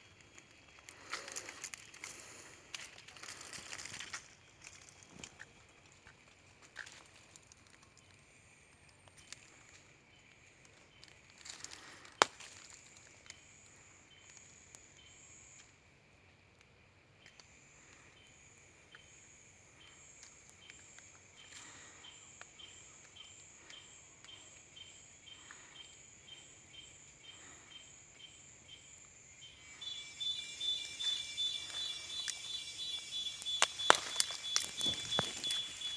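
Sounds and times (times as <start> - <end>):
insects chirping: 17.3 - 35.9
insect buzz with high tone: 29.2 - 35.9.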